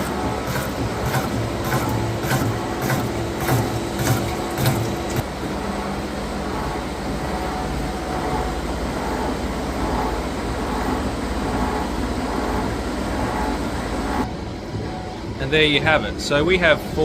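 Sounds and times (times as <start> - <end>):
gear shaper clattering: 0.0 - 5.2.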